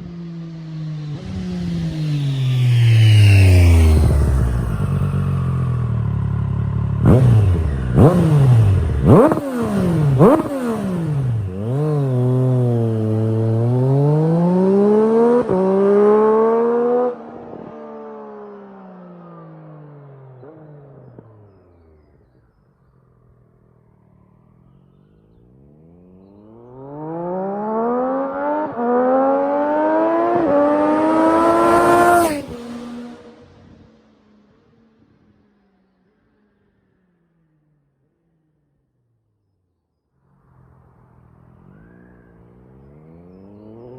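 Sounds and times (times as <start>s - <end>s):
motorcycle engine revving: 0.0s - 18.6s, 26.2s - 33.8s.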